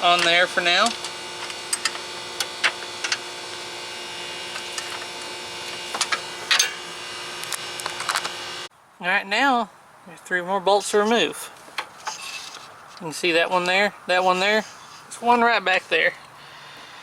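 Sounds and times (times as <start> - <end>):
steady hum: 0.0 - 8.7.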